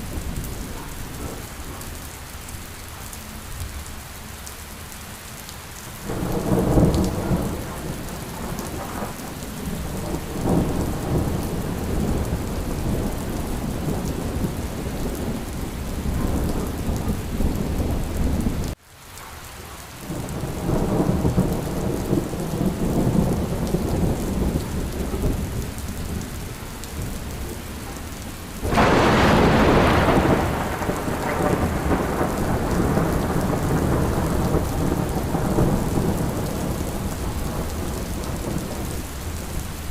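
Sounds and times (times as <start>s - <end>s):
steady rain: 0.0s - 39.9s
rolling thunder: 6.0s - 18.8s, 20.1s - 39.9s
loud thunderclap: 6.1s - 18.8s, 28.6s - 38.9s.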